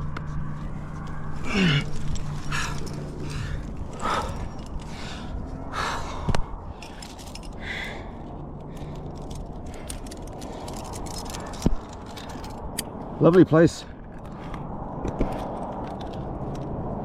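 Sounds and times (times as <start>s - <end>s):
wind rumble on microphone: 0.0s - 17.0s
climbing gear clicking and jingling: 0.4s - 14.6s
person breathing hard: 1.4s - 11.6s.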